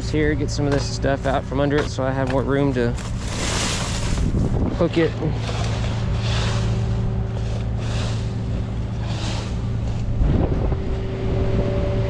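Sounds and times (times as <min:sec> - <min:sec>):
truck engine idling: 0:00.0 - 0:10.4
bursts of rustling: 0:03.0 - 0:04.6.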